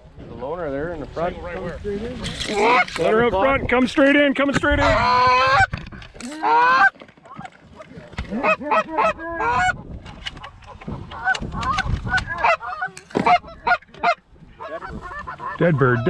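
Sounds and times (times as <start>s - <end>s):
goose honking and clucking: 2.4s - 3.2s, 4.6s - 16.0s.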